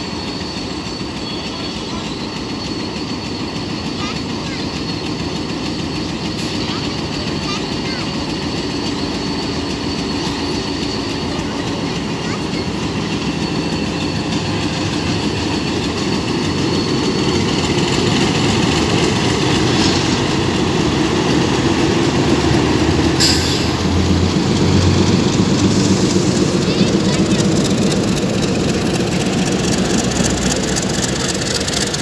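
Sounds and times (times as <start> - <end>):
diesel locomotive engine running: 0.0 - 32.0
train wheels clattering on rails: 0.0 - 32.0.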